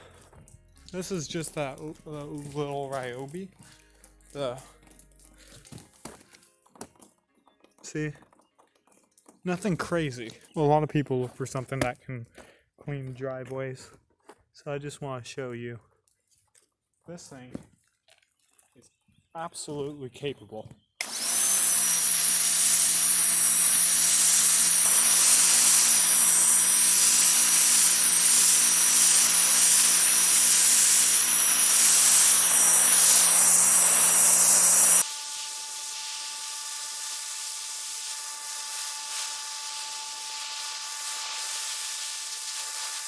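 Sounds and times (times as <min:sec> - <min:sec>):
pressure washer spraying: 0:21.0 - 0:43.0
pump motor humming: 0:21.0 - 0:43.0.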